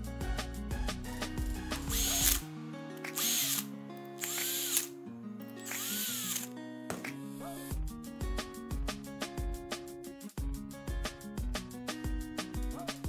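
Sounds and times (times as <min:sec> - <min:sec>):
cordless drill whining: 0:01.8 - 0:02.4, 0:03.0 - 0:04.9, 0:05.6 - 0:06.5.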